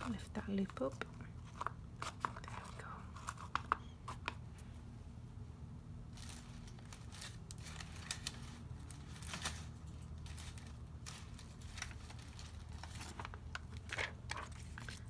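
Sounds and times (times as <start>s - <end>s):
steady low hum: 0.0s - 15.0s
paper rustling: 6.1s - 15.0s.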